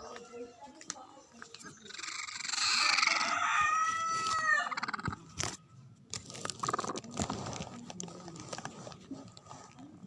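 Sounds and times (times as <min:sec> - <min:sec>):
crunching and clicking pecks: 0:04.2 - 0:10.0.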